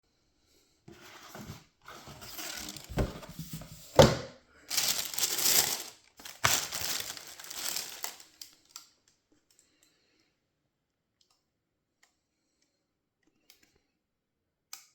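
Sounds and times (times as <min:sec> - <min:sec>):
paper crinkling and rustling: 0:00.9 - 0:04.1, 0:04.7 - 0:08.8.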